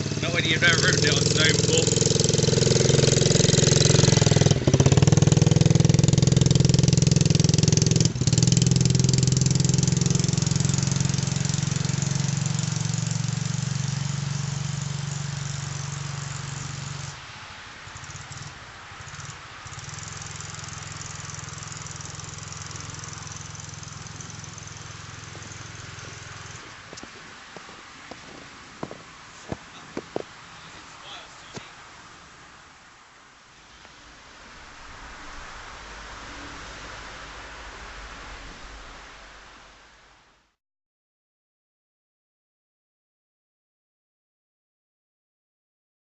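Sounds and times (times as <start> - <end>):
dirt bike engine running: 0.0 - 17.2, 17.8 - 30.3.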